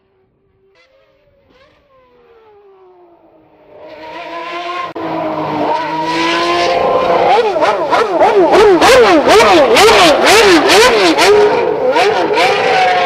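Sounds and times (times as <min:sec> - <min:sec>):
car engine: 0:00.0 - 0:13.0.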